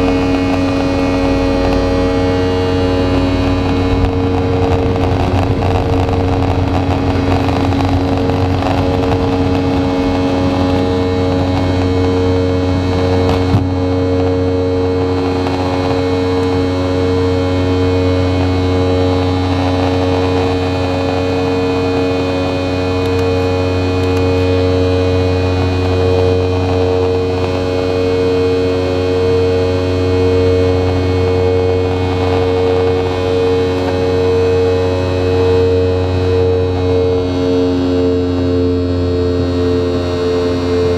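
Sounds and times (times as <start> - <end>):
rushing noise: 0.0 - 27.6
airplane cabin engine drone: 0.0 - 40.9.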